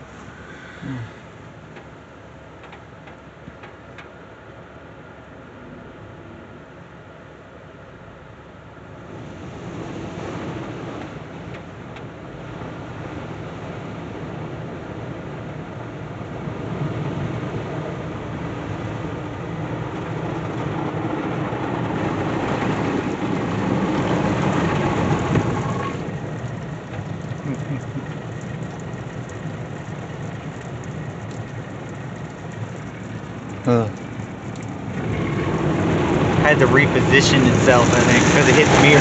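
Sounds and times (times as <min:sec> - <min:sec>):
car wash spray drumming on car: 0:09.0 - 0:39.0.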